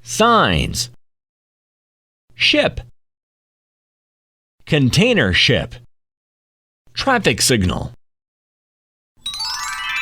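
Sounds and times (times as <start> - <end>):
rising bell-like chime jingle: 9.2 - 10.0.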